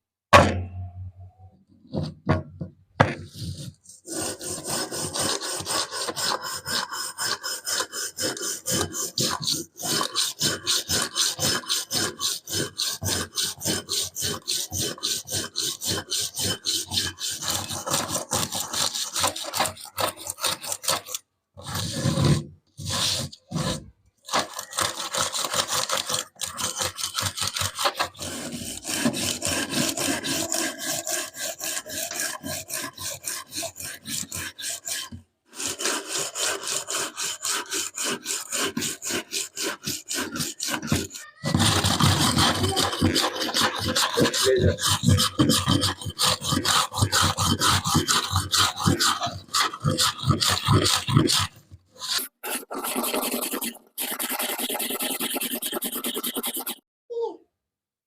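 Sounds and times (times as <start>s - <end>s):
knock: 2.0s - 3.3s
abrasive scraping rusty steel: 36.6s - 52.4s.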